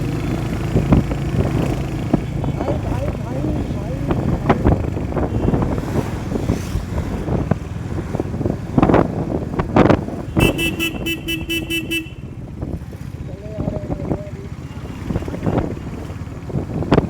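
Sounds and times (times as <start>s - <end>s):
motorcycle road and engine noise: 0.0s - 17.0s
vehicle horn stuttering beeps: 10.3s - 12.3s.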